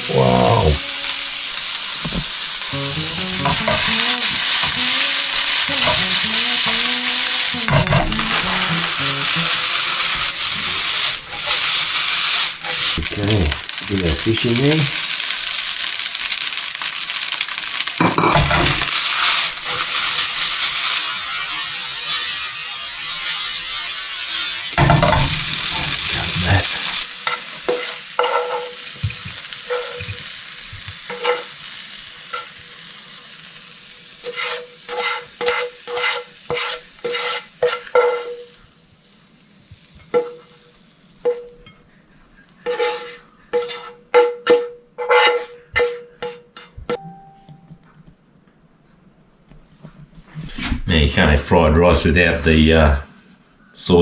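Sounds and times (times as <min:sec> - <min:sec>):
rice sizzling in a frying pan: 0:00.0 - 0:47.1
spatula scraping and tapping pan: 0:00.9 - 0:13.1, 0:18.0 - 0:22.4, 0:23.0 - 0:31.5, 0:34.2 - 0:38.5, 0:39.9 - 0:40.6, 0:41.2 - 0:41.8, 0:42.6 - 0:47.9.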